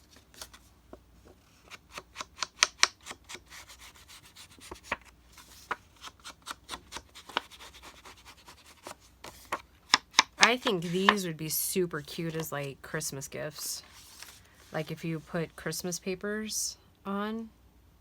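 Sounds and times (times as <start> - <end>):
paper scraping on a surface: 13.8 - 15.6.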